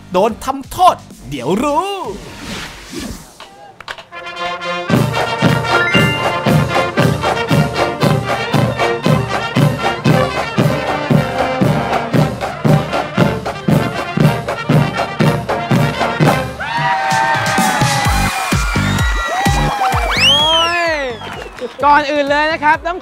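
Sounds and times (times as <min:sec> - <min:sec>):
brass instruments playing: 0:04.1 - 0:16.6.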